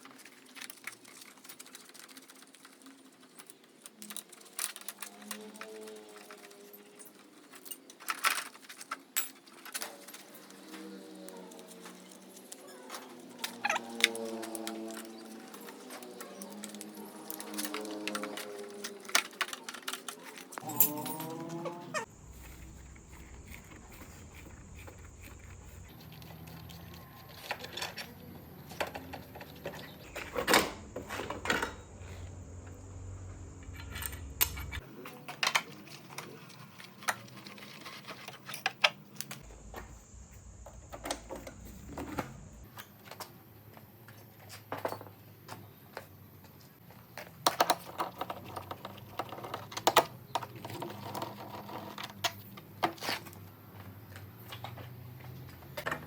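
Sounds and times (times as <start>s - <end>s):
metallic clicks and clinks of tools: 0.0s - 22.1s.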